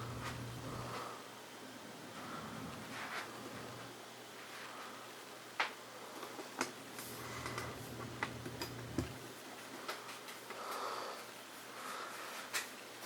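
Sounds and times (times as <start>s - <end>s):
low hum: 0.0s - 4.0s.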